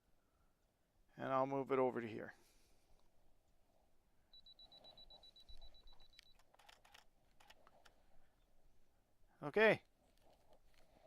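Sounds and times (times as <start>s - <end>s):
camera self-timer beeping: 4.3s - 7.6s
camera shutter clicking: 6.2s - 8.0s.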